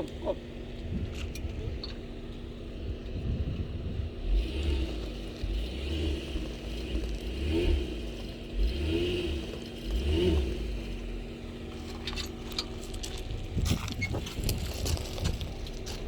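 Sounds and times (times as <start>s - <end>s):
engine revving: 3.2s - 12.6s.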